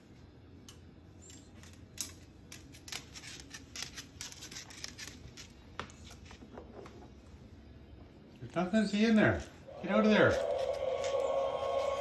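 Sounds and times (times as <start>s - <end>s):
scratchy rustles: 2.6s - 6.4s.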